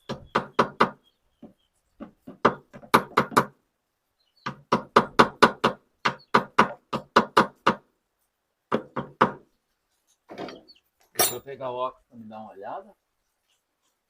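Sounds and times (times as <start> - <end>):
hammer knocking on metal bearing: 0.1 - 3.5, 8.7 - 9.4.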